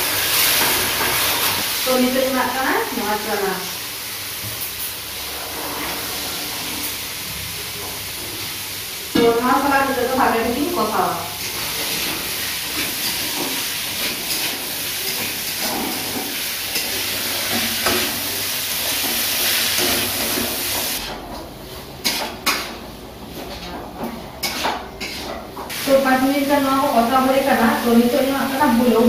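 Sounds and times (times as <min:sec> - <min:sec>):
chickpeas sizzling in oil: 0:00.0 - 0:23.8, 0:24.4 - 0:29.0
metal spatula scraping a pan: 0:11.4 - 0:21.2, 0:22.0 - 0:25.6.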